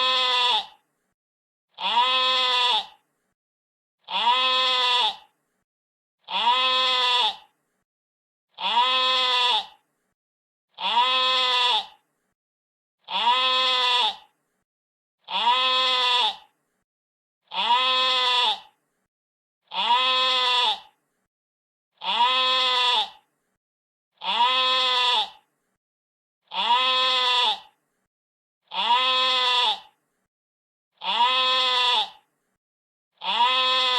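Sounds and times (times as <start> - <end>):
sheep bleating: 0.0 - 0.8, 1.8 - 3.0, 4.1 - 5.3, 6.3 - 7.5, 8.6 - 9.8, 10.8 - 12.0, 13.1 - 14.3, 15.3 - 16.5, 17.5 - 18.7, 19.7 - 20.9, 22.0 - 23.2, 24.2 - 25.4, 26.5 - 27.8, 28.7 - 29.9, 31.0 - 32.2, 33.2 - 33.9.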